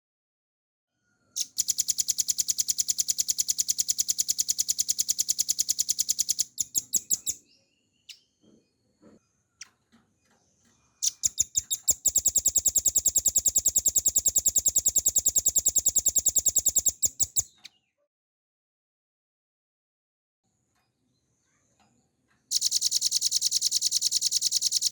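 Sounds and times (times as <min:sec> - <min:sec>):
bird singing rapid trills: 0:01.4 - 0:08.4, 0:10.9 - 0:17.8, 0:22.5 - 0:24.9.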